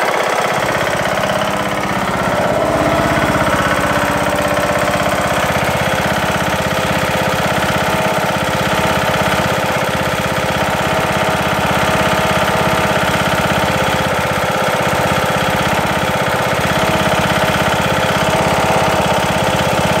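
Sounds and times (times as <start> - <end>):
lawn tractor engine knocking: 0.0 - 20.0.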